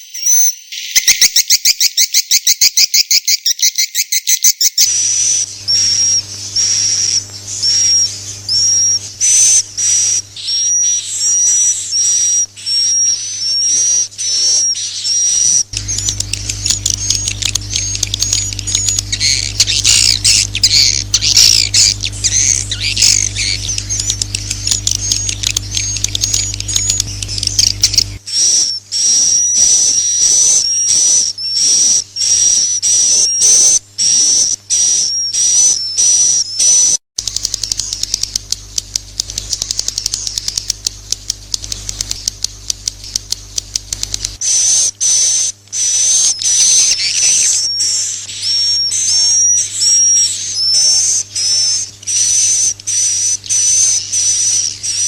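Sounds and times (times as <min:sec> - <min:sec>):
twittering bird chorus: 0:00.1 - 0:38.5, 0:43.0 - 0:55.0
high swiftlet chirps: 0:04.8 - 0:55.0
low steady hum: 0:04.9 - 0:33.2.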